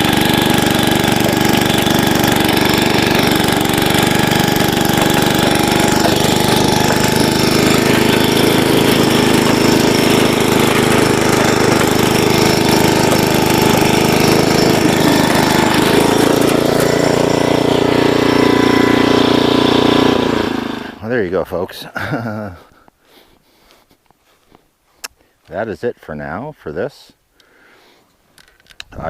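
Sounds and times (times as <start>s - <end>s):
tines churning soil: 0.0s - 21.1s
rototiller engine running: 0.0s - 21.2s.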